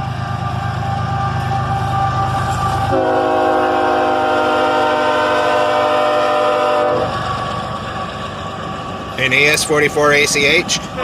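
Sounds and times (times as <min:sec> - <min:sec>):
train rumble: 0:00.0 - 0:11.0
train horn long chord: 0:02.2 - 0:07.2.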